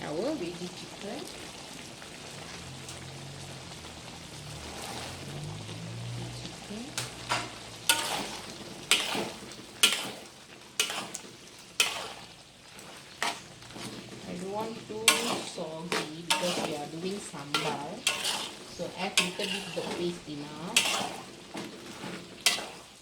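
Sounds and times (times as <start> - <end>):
food sizzling: 0.0 - 23.0
spoon scraping a pot: 7.3 - 23.0.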